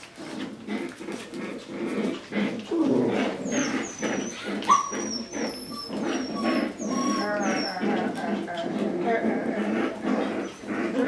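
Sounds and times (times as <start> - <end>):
puppies growling: 0.0 - 11.0
puppy yip: 3.6 - 7.8.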